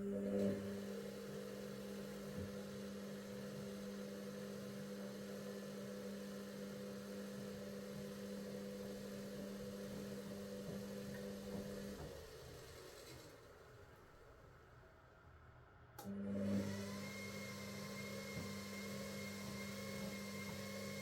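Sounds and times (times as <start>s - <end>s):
washing machine humming: 0.0s - 14.4s, 16.0s - 21.0s.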